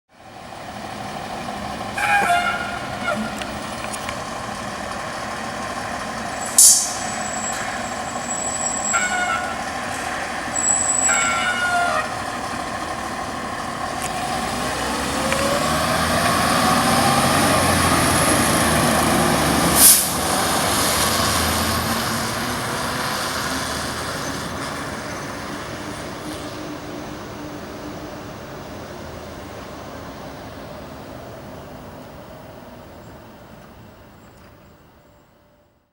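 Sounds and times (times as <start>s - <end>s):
diesel engine rising in pitch: 0.1s - 34.2s
air horn blasts: 2.0s - 3.5s, 8.3s - 9.7s, 10.6s - 12.2s
air brake hisses: 6.4s - 7.8s, 19.8s - 20.2s.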